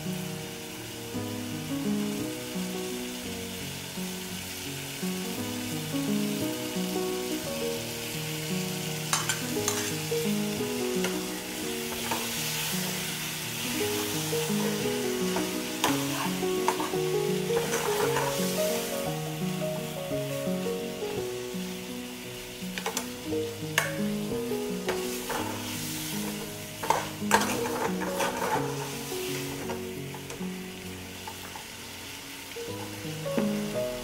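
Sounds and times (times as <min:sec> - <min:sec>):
vegetables sizzling in a pot: 0:00.0 - 0:34.0
background music: 0:01.2 - 0:34.0
metal ladle scraping a pot: 0:09.1 - 0:10.0, 0:14.5 - 0:18.6, 0:26.2 - 0:29.0.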